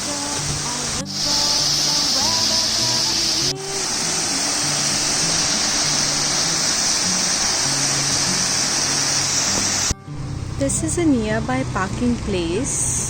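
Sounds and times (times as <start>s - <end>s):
rushing water: 0.0s - 9.9s
faint background music: 0.0s - 13.0s.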